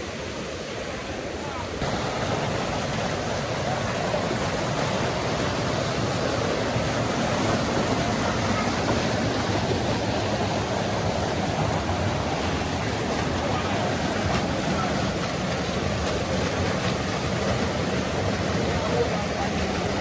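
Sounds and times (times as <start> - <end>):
river water rushing over rocks: 1.8 - 20.0.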